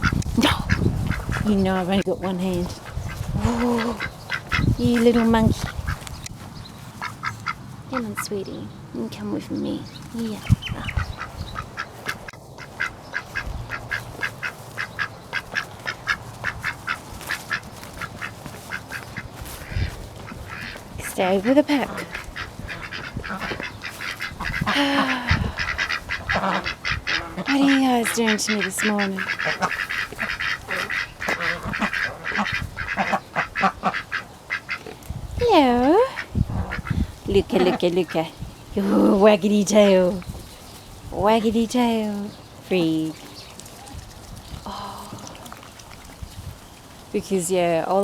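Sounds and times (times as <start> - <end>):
ducks quacking: 0.0 - 6.1, 6.9 - 8.7, 9.5 - 35.0, 35.6 - 40.3.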